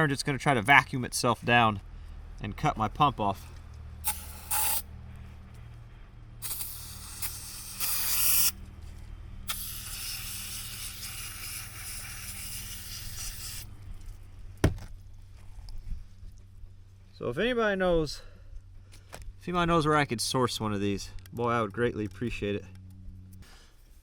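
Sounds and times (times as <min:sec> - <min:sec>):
aerosol spraying: 0:04.0 - 0:04.8, 0:06.4 - 0:08.6, 0:09.5 - 0:13.7
sharp knock: 0:14.6 - 0:14.9.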